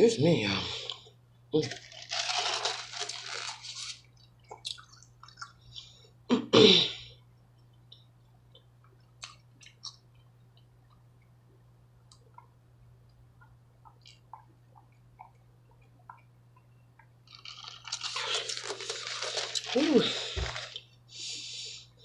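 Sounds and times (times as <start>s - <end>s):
wet chewing: 13.4s - 20.9s.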